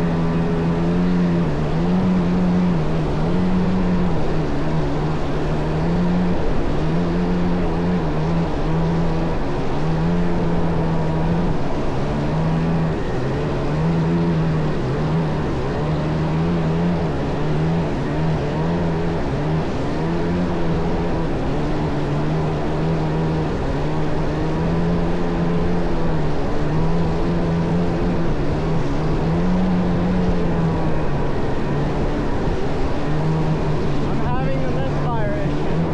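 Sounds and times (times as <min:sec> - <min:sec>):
jet ski engine running: 0:00.0 - 0:35.9.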